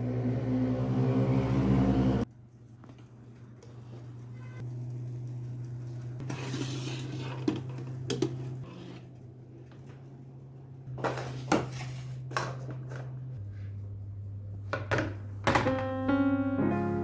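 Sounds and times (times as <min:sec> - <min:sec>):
steady low hum: 0:12.0 - 0:17.0.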